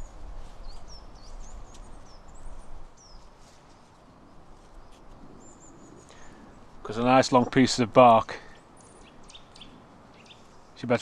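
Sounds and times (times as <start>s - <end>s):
low steady background rumble: 0.0s - 11.0s
songbirds chirping: 0.0s - 11.0s.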